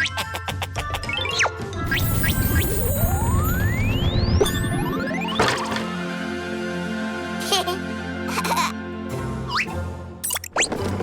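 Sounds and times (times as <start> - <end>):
background music: 0.0 - 11.0
rising whistle-like tone: 1.8 - 5.4
low rumble: 1.9 - 5.2.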